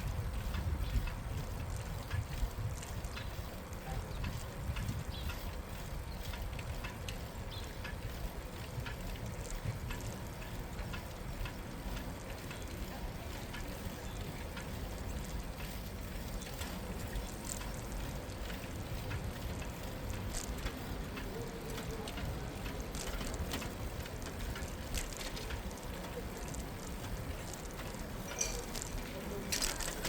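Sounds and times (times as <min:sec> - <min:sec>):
bicycle riding on street: 0:00.0 - 0:30.0
light clicks and ticks: 0:00.0 - 0:30.0.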